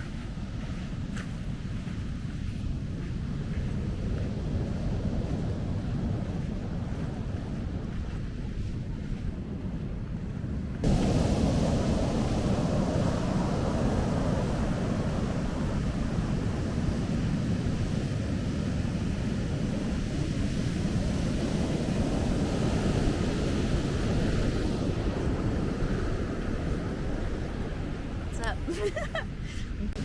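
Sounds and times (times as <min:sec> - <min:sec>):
wind buffeting microphone: 0:00.0 - 0:30.0
ocean surf rushing: 0:10.8 - 0:30.0.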